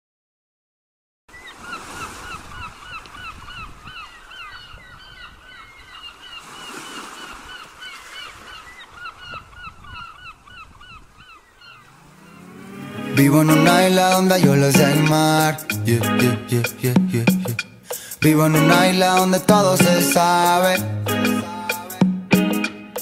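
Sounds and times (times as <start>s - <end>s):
flock of birds calling: 1.3s - 14.2s.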